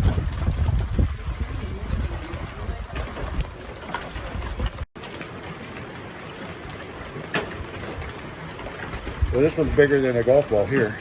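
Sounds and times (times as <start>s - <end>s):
hailstones tapping: 0.0s - 11.0s
wind buffeting microphone: 0.0s - 11.0s.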